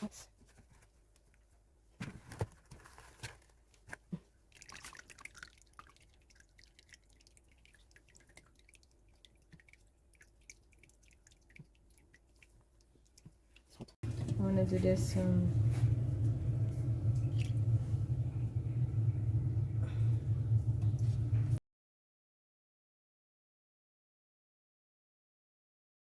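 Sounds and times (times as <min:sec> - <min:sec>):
wax and water dripping: 0:04.0 - 0:14.3, 0:16.2 - 0:18.2.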